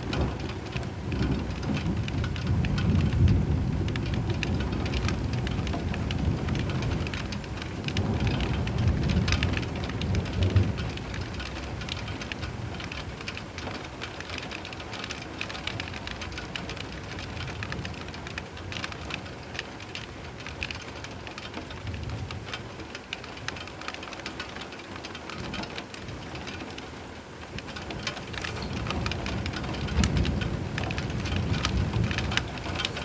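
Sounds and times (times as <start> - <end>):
thunder rumbling: 0.0 - 14.0, 27.5 - 33.0
heavy rain pattering: 0.0 - 33.0.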